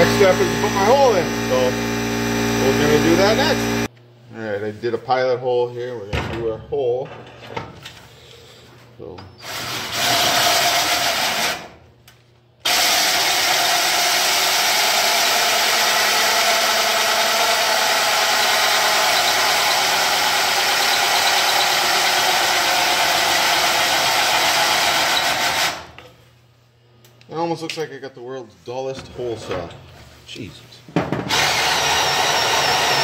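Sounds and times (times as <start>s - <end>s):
drill cutting sheet metal: 0.0s - 3.9s, 9.4s - 11.7s, 12.7s - 25.9s, 31.3s - 33.0s.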